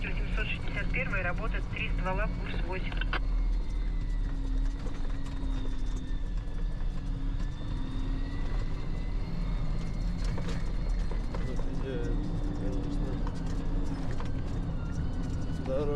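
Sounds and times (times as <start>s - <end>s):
engine and road rumble: 0.0s - 15.9s.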